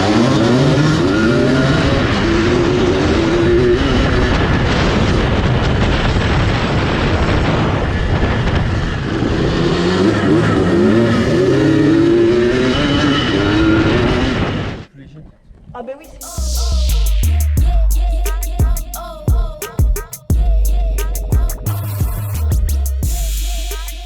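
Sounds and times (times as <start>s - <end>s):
two-stroke engine revving: 0.0s - 4.4s, 9.0s - 14.6s.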